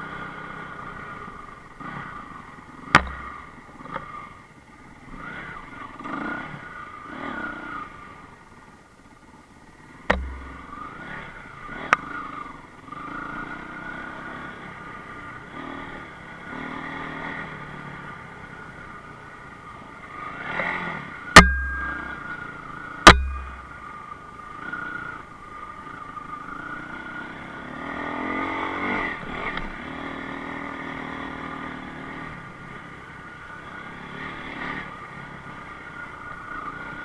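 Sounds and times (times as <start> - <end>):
motorcycle engine revving: 1.8 - 4.2, 9.9 - 18.8, 20.1 - 25.2
sharp knocks: 3.0 - 3.4, 10.1 - 10.8, 21.4 - 22.2, 23.1 - 23.8.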